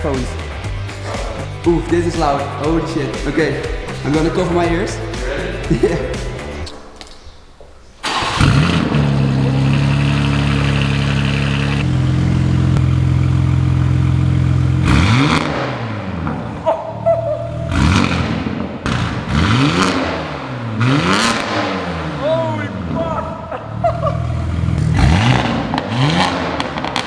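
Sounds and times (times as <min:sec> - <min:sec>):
loud car engine revving: 0:08.0 - 0:16.7, 0:17.6 - 0:23.2, 0:24.2 - 0:27.0.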